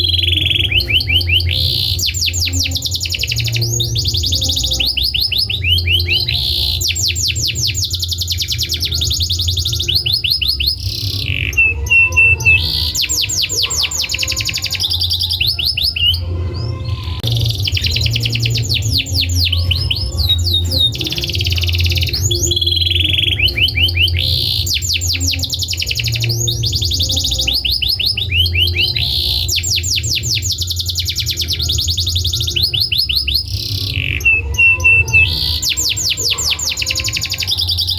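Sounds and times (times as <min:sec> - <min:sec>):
steady low hum: 0:00.0 - 0:29.6
canary singing trills: 0:00.0 - 0:37.9.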